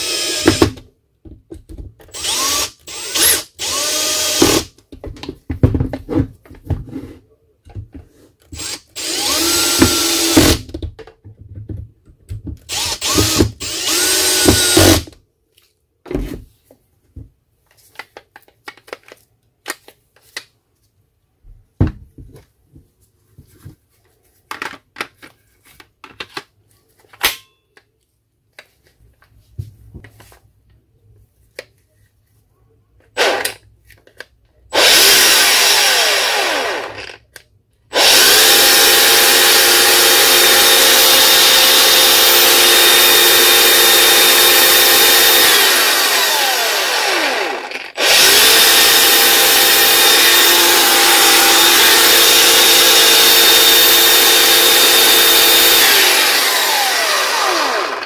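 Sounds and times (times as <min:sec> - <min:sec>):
angle grinder spinning up and down: 0:02.1 - 0:04.7, 0:08.6 - 0:10.6, 0:12.7 - 0:15.1, 0:34.8 - 0:37.2, 0:37.9 - 0:58.0.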